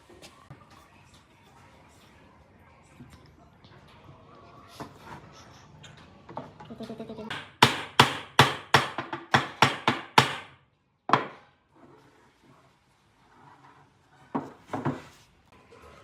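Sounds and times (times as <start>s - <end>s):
hammer striking wood: 7.3s - 11.4s.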